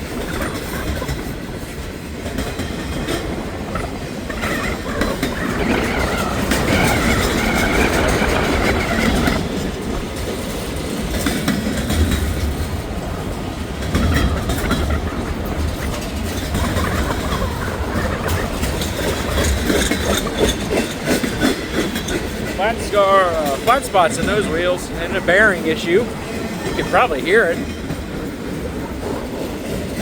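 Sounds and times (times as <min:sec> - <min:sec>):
freight train rumbling past: 0:00.0 - 0:30.0
wheels clacking over rails: 0:00.0 - 0:30.0
wheel squeal: 0:03.7 - 0:09.7, 0:14.0 - 0:22.6.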